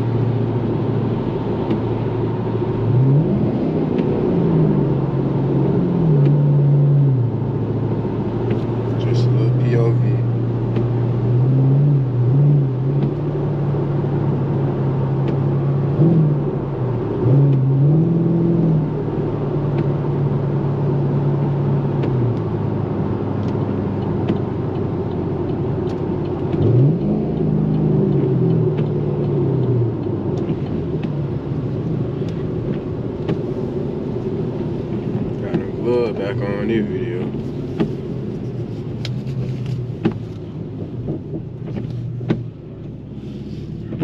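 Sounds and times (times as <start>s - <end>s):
car engine at part throttle: 0.0s - 44.0s
tyres hissing on wet road: 43.1s - 44.0s.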